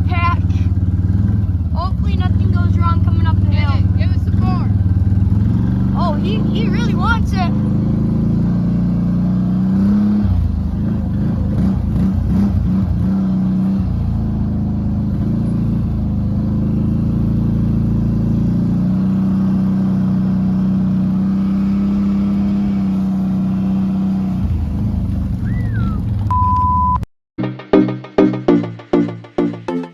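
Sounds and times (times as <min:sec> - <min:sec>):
quad engine running under load: 0:00.0 - 0:26.4
falling whistle: 0:25.4 - 0:26.6
short high beep: 0:26.3 - 0:27.1.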